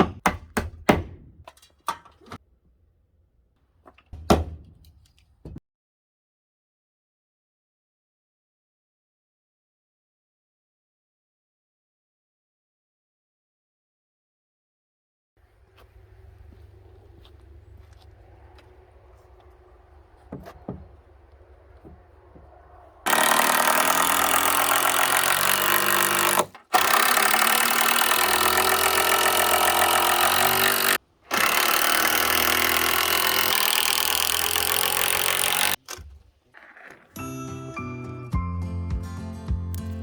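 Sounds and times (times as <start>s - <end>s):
engine or power tool running hard: 18.2s - 35.8s.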